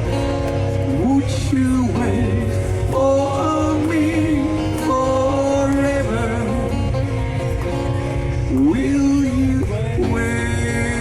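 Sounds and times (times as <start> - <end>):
acoustic guitar: 0.0 - 11.0
person singing slow melody: 0.8 - 7.2.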